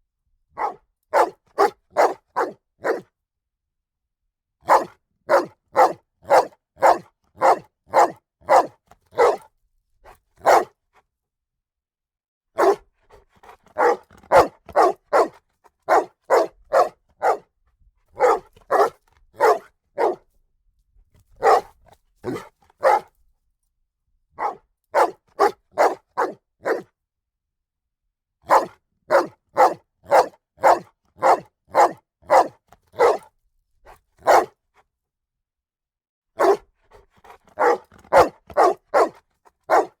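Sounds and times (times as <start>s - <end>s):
dog barking: 0.6s - 3.1s, 4.6s - 9.5s, 10.4s - 10.8s, 12.6s - 12.8s, 13.4s - 17.5s, 18.2s - 20.3s, 21.4s - 23.1s, 24.4s - 26.9s, 28.4s - 33.3s, 34.2s - 34.6s, 36.4s - 40.0s.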